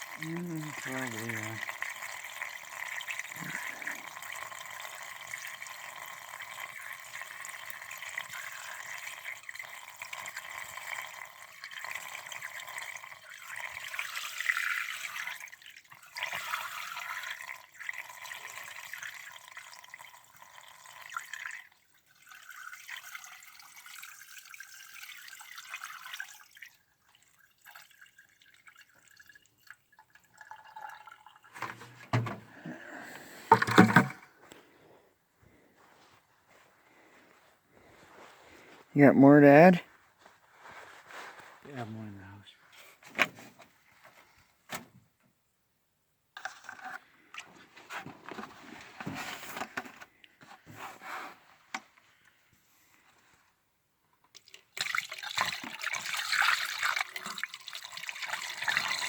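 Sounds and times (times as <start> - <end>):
liquid pouring: 0.0 - 34.3, 54.3 - 59.0.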